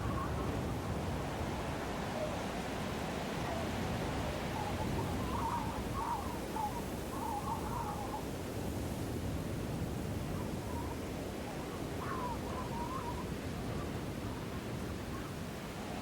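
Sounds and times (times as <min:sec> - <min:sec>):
faint wavering bird calls: 0:04.5 - 0:08.2, 0:11.6 - 0:13.3.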